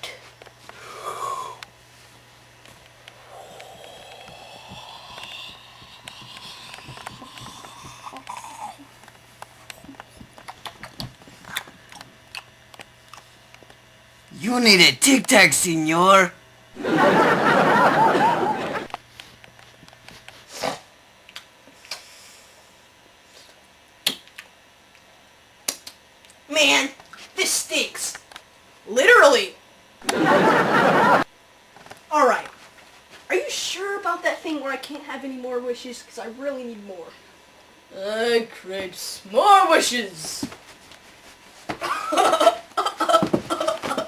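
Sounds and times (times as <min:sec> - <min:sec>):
person breathing out: 0:00.8 - 0:01.6, 0:03.2 - 0:08.8
breathy laugh: 0:16.8 - 0:18.9.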